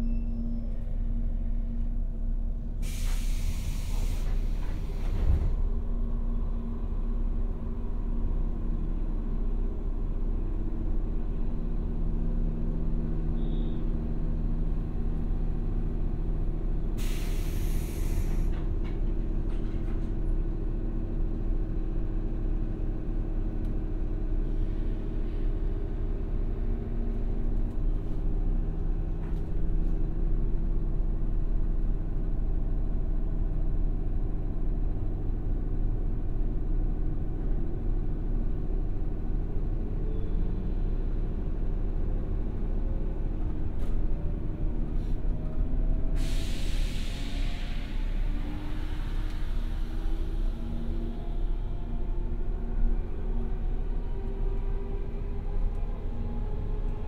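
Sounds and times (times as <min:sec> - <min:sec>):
train equipment humming: 0:00.0 - 0:57.0
train moving off: 0:02.7 - 0:07.6, 0:15.2 - 0:21.1, 0:38.8 - 0:57.0
air release hiss: 0:02.8 - 0:05.1, 0:17.0 - 0:18.5, 0:46.2 - 0:49.9.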